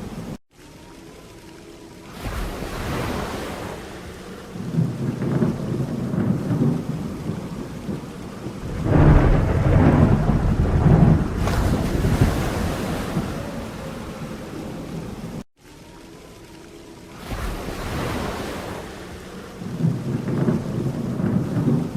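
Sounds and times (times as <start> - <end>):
rain falling: 0.0 - 21.9
rolling thunder: 4.6 - 15.4, 19.6 - 21.9.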